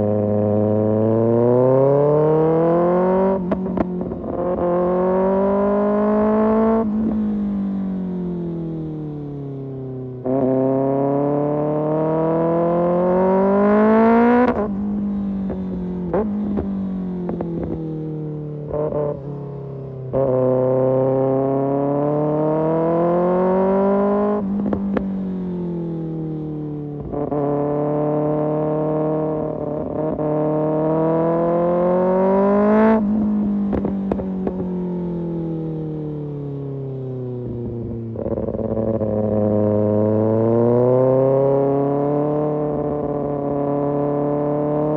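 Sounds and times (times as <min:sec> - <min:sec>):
motorcycle engine revving: 0:00.0 - 0:09.5, 0:10.2 - 0:19.4, 0:20.1 - 0:36.4, 0:37.4 - 0:44.9
exhaust crackles and pops: 0:33.6 - 0:34.6.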